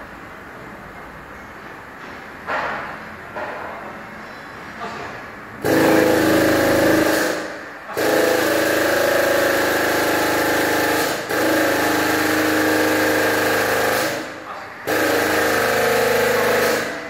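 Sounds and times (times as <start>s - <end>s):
machine motor humming: 5.6s - 17.0s.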